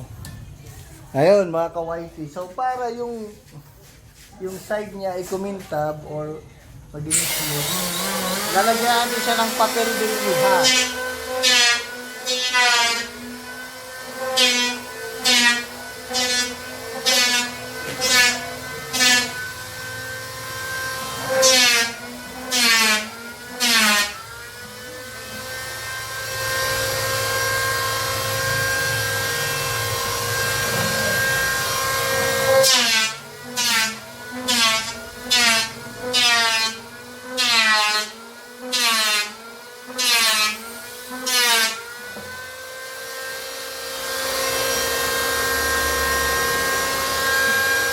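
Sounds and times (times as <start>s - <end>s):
sandpaper rasping on plywood: 7.1s - 13.4s, 14.0s - 19.5s, 21.1s - 25.4s, 30.5s - 41.9s.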